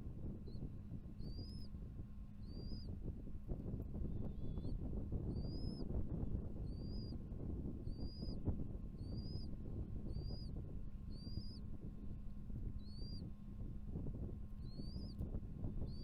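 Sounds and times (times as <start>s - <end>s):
eagle chick calling: 6.6s - 7.2s, 9.0s - 9.5s, 10.1s - 10.5s, 11.1s - 11.6s.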